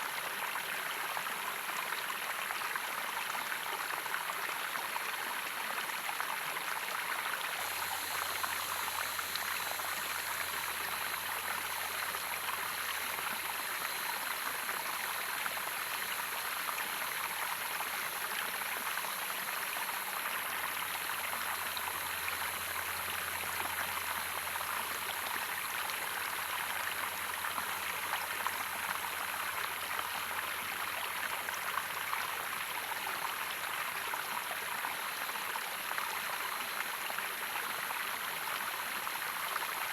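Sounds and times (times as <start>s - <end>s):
running water flowing: 6.1s - 34.4s.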